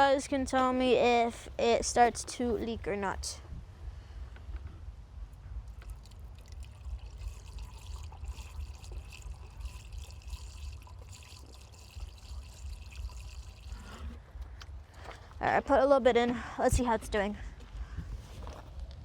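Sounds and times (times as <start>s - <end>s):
low steady rumble: 0.0s - 19.0s
liquid trickling into reservoir: 5.7s - 14.2s.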